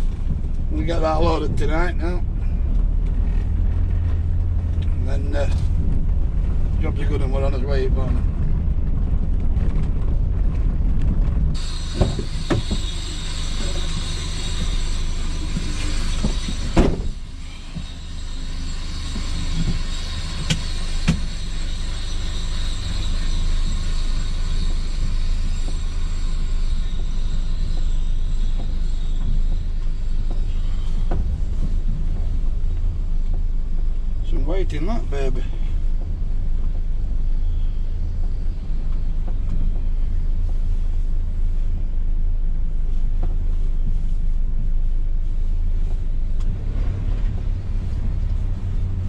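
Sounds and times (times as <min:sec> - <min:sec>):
vehicle engine running: 0:00.0 - 0:49.0
sharp knocks and clanks: 0:11.6 - 0:21.7.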